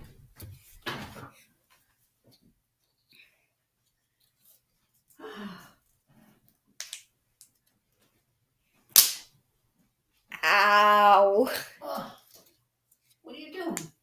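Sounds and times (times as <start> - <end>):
sharp slap on skin: 9.0 - 9.3.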